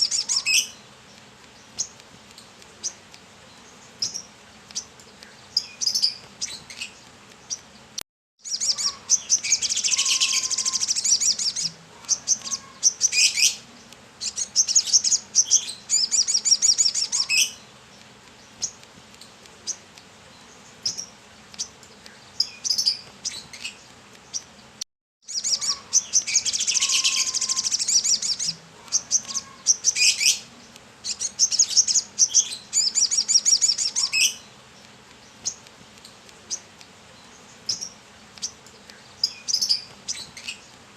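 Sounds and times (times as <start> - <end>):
bird twittering trills: 0.0 - 0.8, 8.4 - 17.6, 19.6 - 35.7, 36.4 - 40.7
single bird chirps: 8.4 - 13.6, 25.3 - 30.4.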